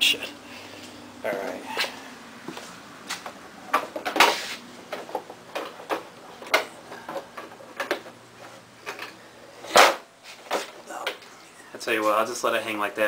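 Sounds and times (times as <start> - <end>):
tools and parts clicking and knocking: 4.9 - 8.2, 8.8 - 11.3.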